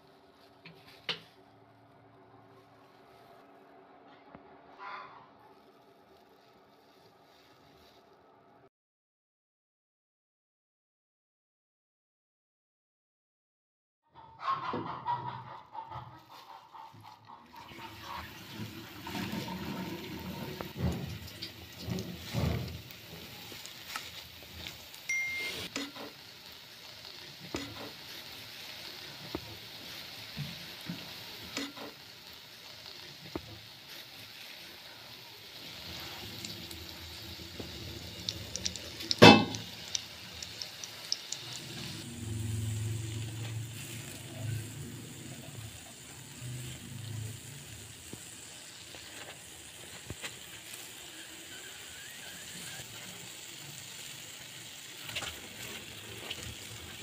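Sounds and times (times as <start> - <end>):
dough sizzling in oil: 16.2 - 57.0
spatula scraping a pan: 16.5 - 26.3, 27.1 - 34.6.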